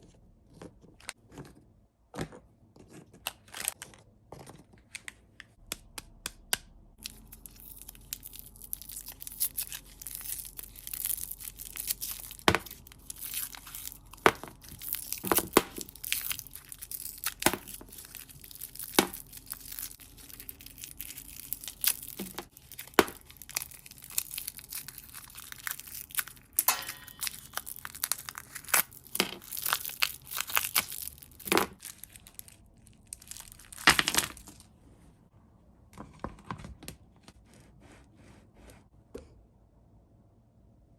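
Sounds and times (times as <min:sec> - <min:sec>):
plastic packaging crinkling: 0:07.0 - 0:34.7.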